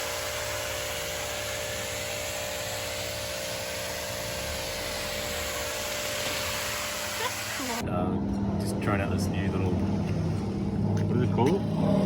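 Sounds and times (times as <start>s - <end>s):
pressure washer spraying water: 0.0s - 7.8s
motor hum: 0.0s - 12.0s.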